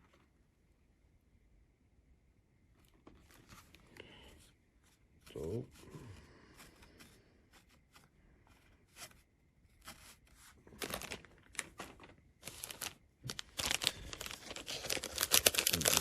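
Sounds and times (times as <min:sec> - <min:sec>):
wrapper crinkling and tearing: 0:10.0 - 0:16.0.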